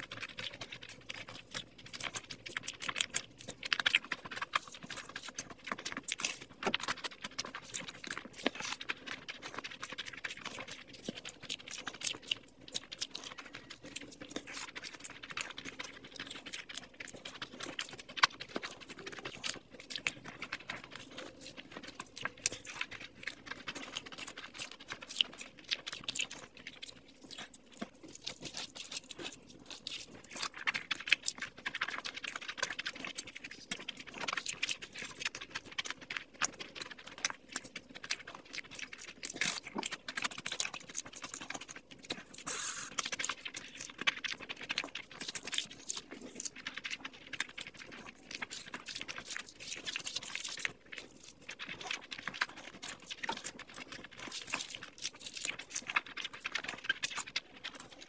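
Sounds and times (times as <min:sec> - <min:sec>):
wet chewing and lip smacking: 0:00.0 - 0:58.0.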